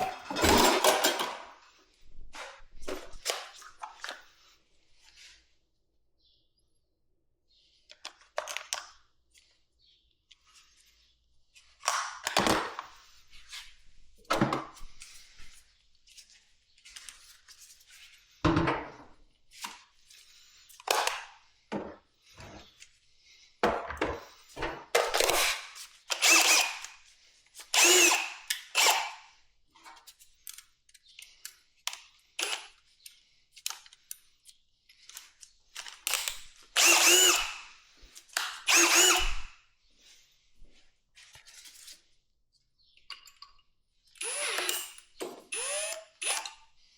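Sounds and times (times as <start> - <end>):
power drill whirring: 25.2 - 29.3, 32.4 - 32.8, 36.0 - 39.6, 44.2 - 46.8.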